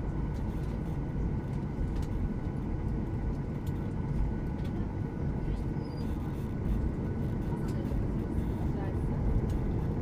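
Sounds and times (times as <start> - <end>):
faint whine tones: 0.0 - 10.0
jet engine cabin rumble: 0.0 - 10.0.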